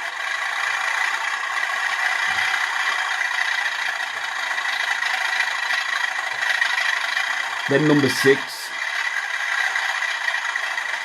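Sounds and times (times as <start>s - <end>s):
recorded diesel engine from small speaker: 0.0s - 11.0s.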